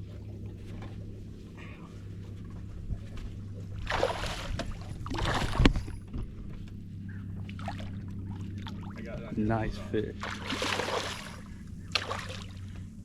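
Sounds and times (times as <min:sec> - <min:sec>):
steady low hum: 0:00.0 - 0:13.0
water splashing against boat: 0:00.0 - 0:13.0.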